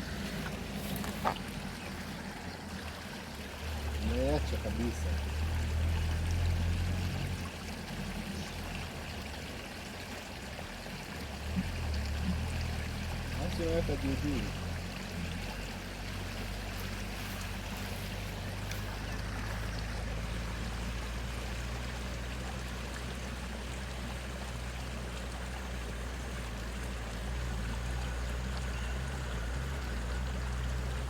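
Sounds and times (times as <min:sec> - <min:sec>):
river water flowing: 0:00.0 - 0:31.0.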